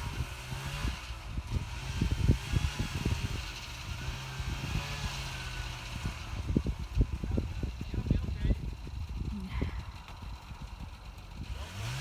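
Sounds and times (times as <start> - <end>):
snowmobile engine idling: 3.0 - 12.0.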